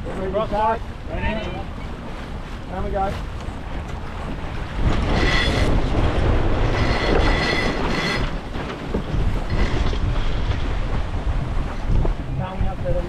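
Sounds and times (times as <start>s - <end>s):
water rushing: 0.0s - 13.0s
wind: 0.0s - 13.0s
deck gear squealing: 6.6s - 8.4s.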